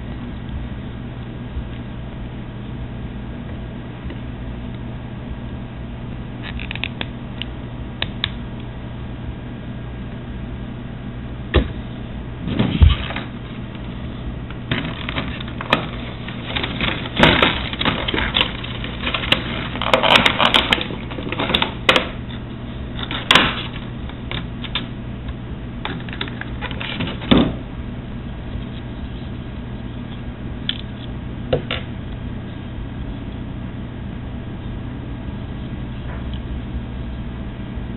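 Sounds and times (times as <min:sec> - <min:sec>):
steady low hum: 0:00.0 - 0:37.9
plastic clicking and rustling: 0:14.7 - 0:22.2.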